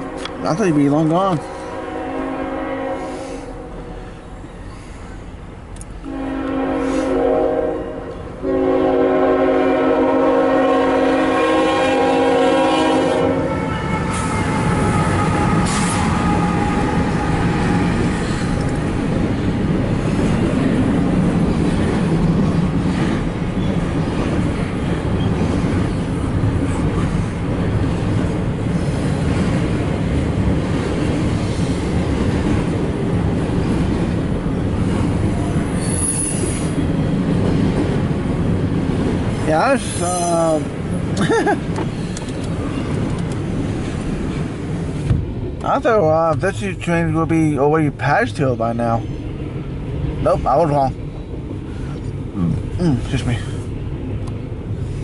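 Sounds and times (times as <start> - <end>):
train cars rolling past: 0.0 - 47.7
locomotive air horn blasts: 1.6 - 4.0, 6.0 - 16.1.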